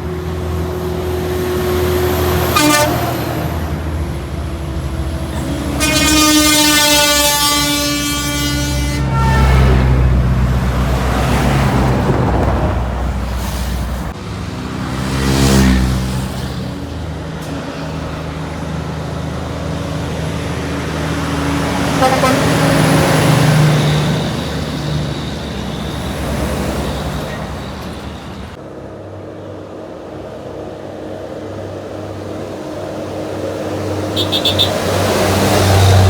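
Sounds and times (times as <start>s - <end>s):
heavy trucks and buses passing: 0.0s - 36.0s
air horn: 2.4s - 3.8s, 5.3s - 10.1s, 21.8s - 25.9s, 34.1s - 36.0s.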